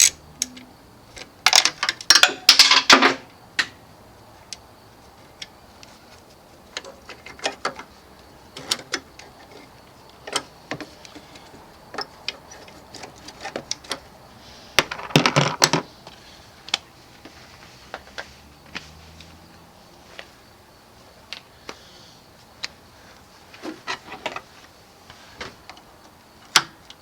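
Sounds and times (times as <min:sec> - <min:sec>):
metallic clicks and taps of tools: 0:00.0 - 0:02.6.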